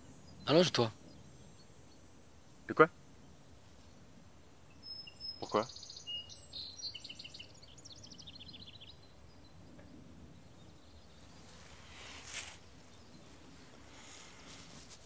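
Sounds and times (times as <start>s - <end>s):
small bird chirping: 3.2s - 15.0s
soft rustle: 11.2s - 15.0s.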